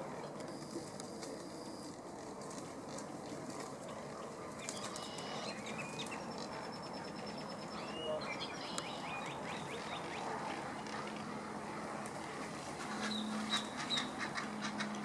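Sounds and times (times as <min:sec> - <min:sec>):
birds chirping and calling: 0:04.6 - 0:10.3, 0:12.9 - 0:15.0.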